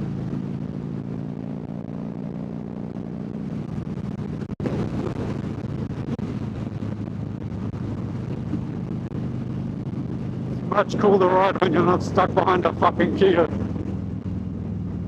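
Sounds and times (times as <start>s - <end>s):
motorcycle engine running steadily: 0.0s - 15.0s
wind noise on microphone: 0.0s - 15.0s.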